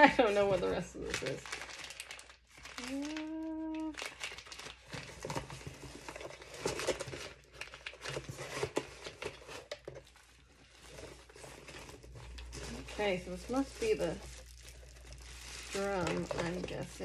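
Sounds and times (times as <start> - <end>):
packaging crinkling and rustling: 0.0 - 17.0.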